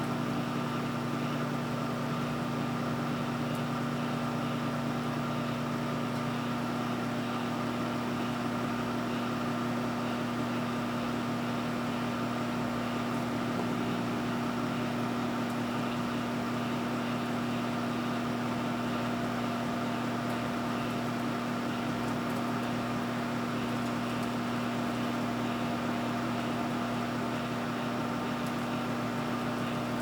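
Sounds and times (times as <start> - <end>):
microwave oven humming: 0.0 - 30.0
fan whirring: 9.7 - 30.0.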